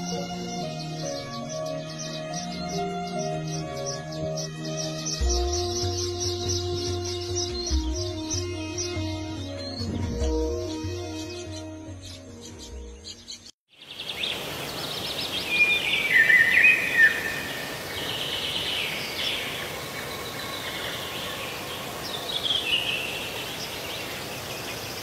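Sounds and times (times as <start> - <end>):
songbirds chirping and whistling: 0.0 - 25.0.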